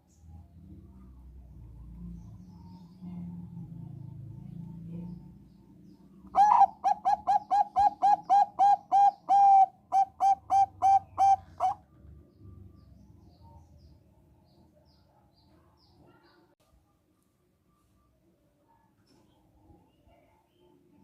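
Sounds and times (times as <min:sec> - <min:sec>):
zebra dove cooing: 0:06.3 - 0:11.8.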